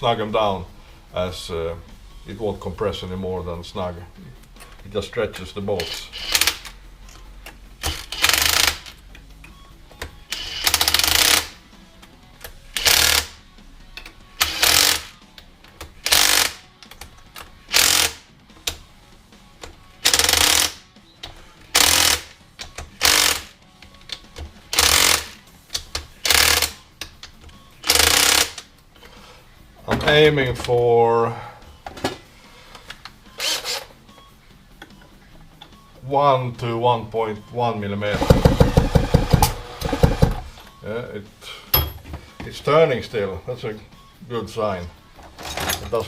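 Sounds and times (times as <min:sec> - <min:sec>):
ratchet wrench clicking: 0:05.8 - 0:06.8, 0:07.8 - 0:09.0, 0:10.3 - 0:11.6, 0:12.8 - 0:13.4, 0:14.4 - 0:15.1, 0:16.0 - 0:16.6, 0:17.7 - 0:18.2, 0:20.0 - 0:20.8, 0:21.7 - 0:22.3, 0:23.0 - 0:23.5, 0:24.7 - 0:26.8, 0:27.8 - 0:28.6.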